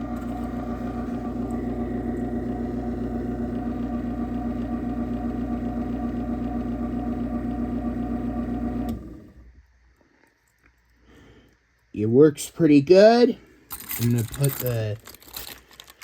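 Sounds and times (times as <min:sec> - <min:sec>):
garage door opener motor humming: 0:00.0 - 0:09.5.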